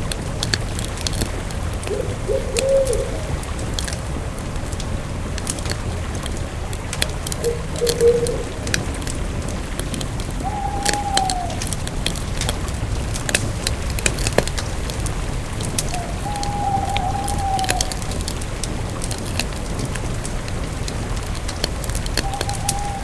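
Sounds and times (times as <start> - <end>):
campfire crackling and popping: 0.0 - 23.0
short pitched calls: 10.4 - 11.8, 22.2 - 23.0.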